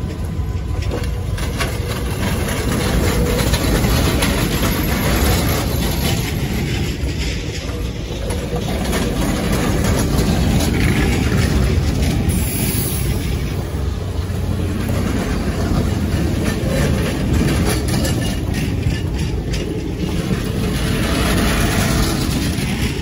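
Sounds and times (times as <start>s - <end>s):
train clicks and clanks: 0.0s - 23.0s
train wheels rumbling: 0.0s - 23.0s.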